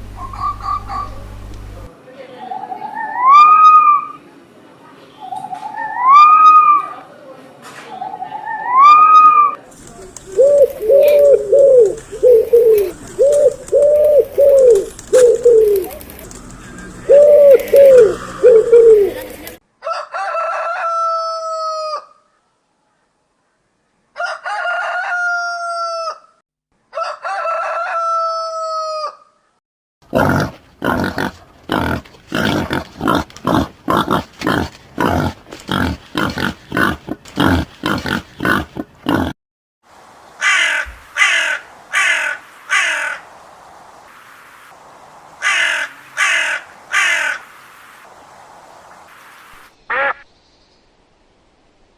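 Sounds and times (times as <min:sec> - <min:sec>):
hen clucking: 0:00.1 - 0:01.3, 0:10.2 - 0:19.4
pigeon cooing: 0:00.2 - 0:01.3, 0:08.0 - 0:19.6
rooster crowing: 0:19.8 - 0:22.2, 0:24.2 - 0:29.3
crow cawing: 0:40.4 - 0:43.3, 0:45.4 - 0:47.5.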